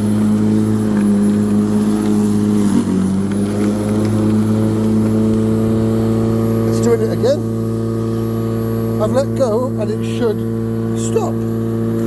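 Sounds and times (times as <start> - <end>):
electric lawnmower running: 0.0 - 12.0.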